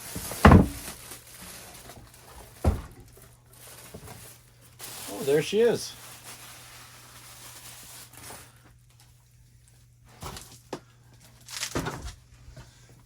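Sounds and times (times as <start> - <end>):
handling knocks: 0.1 - 1.0
packaging rustling: 3.0 - 8.6.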